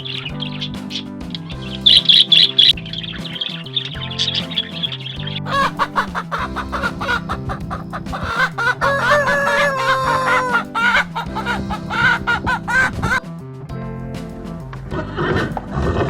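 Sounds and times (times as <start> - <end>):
background music: 0.0 - 16.0
chickens clucking: 5.5 - 13.2
rooster crowing: 5.5 - 13.2.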